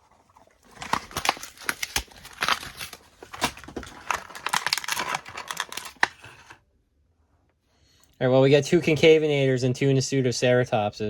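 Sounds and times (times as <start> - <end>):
wrapper crinkling and tearing: 0.4 - 6.6.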